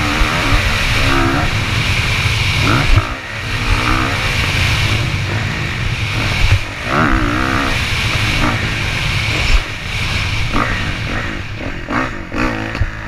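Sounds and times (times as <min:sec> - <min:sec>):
heavy low rumble: 0:00.0 - 0:13.0
motocross bike engine revving: 0:00.0 - 0:13.0.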